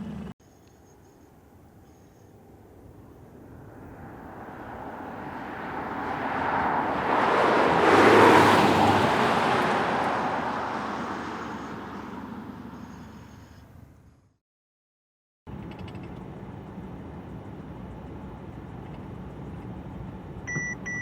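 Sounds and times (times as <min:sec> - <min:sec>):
car driving past: 0:03.2 - 0:13.1.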